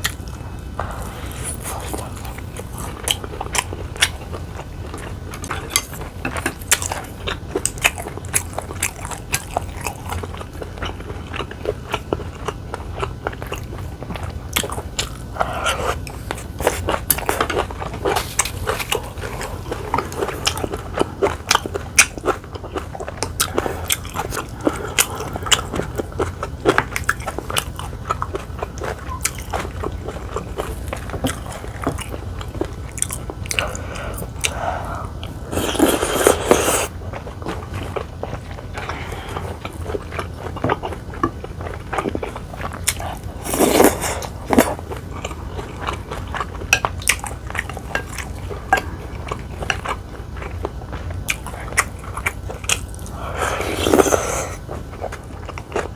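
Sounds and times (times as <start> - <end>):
person biting and chewing food: 29.1 - 48.3, 49.2 - 55.9.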